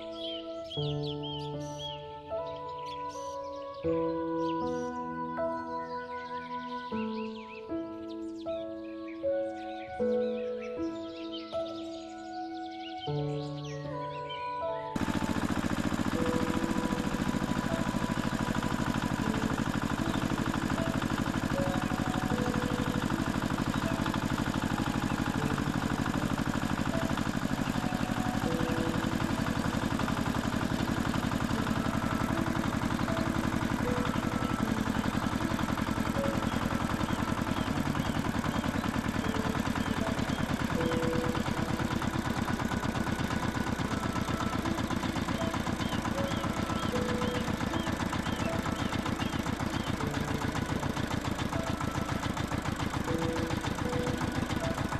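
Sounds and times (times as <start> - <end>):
engine idling with chugging pulse: 15.0 - 54.9.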